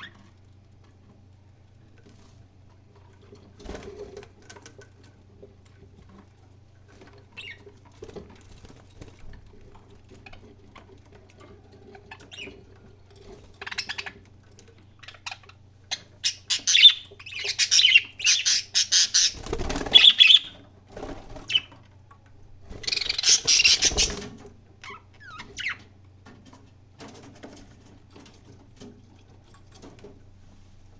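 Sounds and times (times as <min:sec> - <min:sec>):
parrot chirping and squawking: 0:07.4 - 0:07.6, 0:13.6 - 0:14.2, 0:15.0 - 0:20.6, 0:22.8 - 0:24.2, 0:24.8 - 0:25.8.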